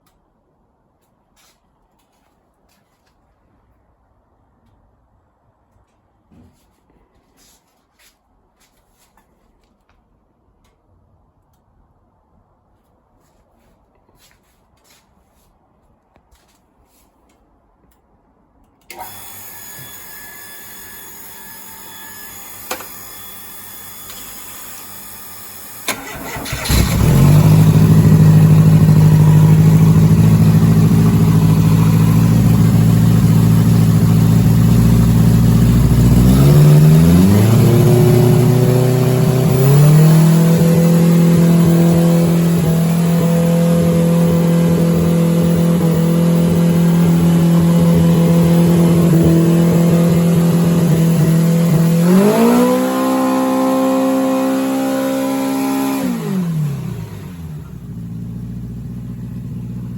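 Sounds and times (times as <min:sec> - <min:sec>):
racing engine running and revving: 0:25.9 - 0:59.6.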